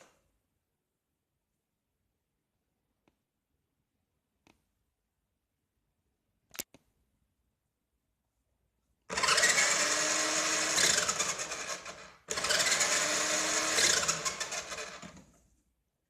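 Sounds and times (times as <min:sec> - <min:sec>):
toy truck motor whining: 0:09.1 - 0:15.2.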